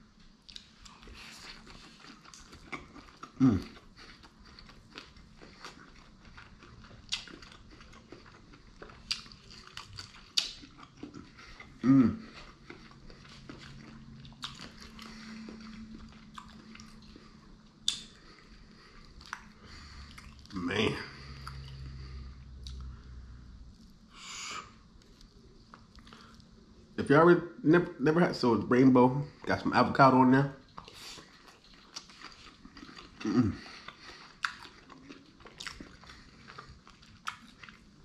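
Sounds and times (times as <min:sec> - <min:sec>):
chewing and biting food: 0:00.2 - 0:23.0, 0:30.6 - 0:38.0
person humming: 0:03.4 - 0:03.6, 0:11.8 - 0:12.2
wet mouth clicks: 0:17.8 - 0:18.1.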